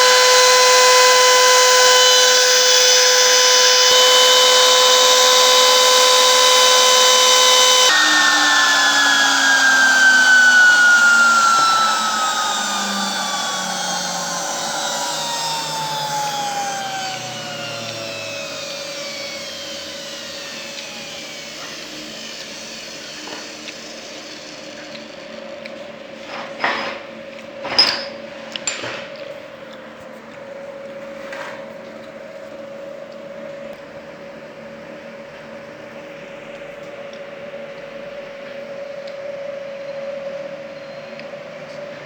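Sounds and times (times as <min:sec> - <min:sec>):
cnc router spindle whining: 0:00.0 - 0:25.6.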